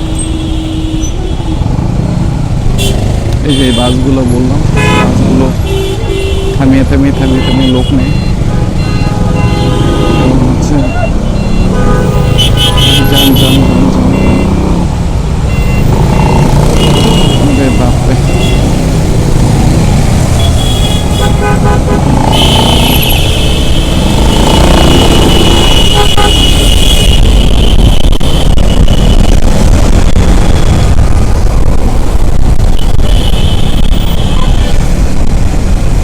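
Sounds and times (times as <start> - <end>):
low rumble of traffic: 0.0 - 36.0
vehicle horns honking: 2.8 - 14.7, 15.5 - 19.0, 20.2 - 29.4, 32.7 - 34.8.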